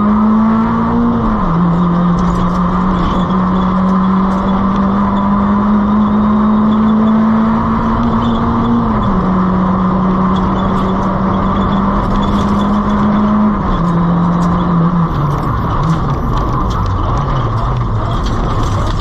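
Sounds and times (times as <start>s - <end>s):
car engine revving high: 0.0s - 19.0s
road and tyre noise: 0.0s - 19.0s.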